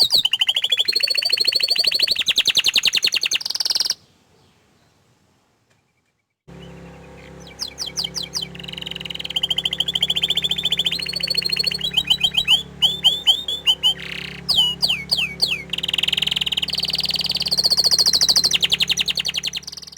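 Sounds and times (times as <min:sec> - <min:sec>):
canary singing: 0:00.0 - 0:04.0, 0:06.5 - 0:19.9
electrical hum: 0:06.5 - 0:19.9.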